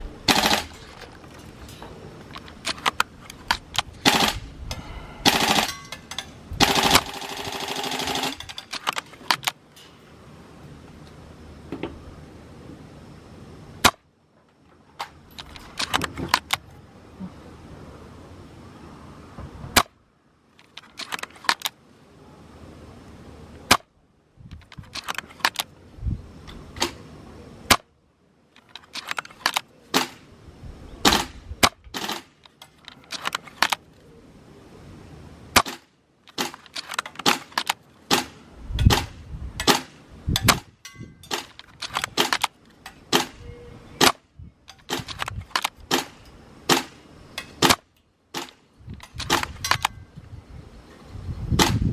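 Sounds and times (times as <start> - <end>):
airsoft rifle shots: 0.0 - 1.7, 2.4 - 4.5, 5.2 - 6.0, 6.6 - 9.5, 29.9 - 30.2, 31.0 - 32.4, 35.6 - 43.4, 44.8 - 48.6.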